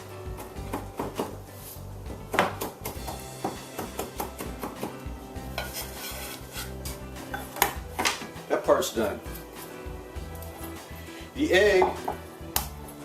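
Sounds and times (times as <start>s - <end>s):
background music: 0.0s - 13.0s
knife chopping on cutting board: 0.4s - 1.4s, 2.1s - 8.4s.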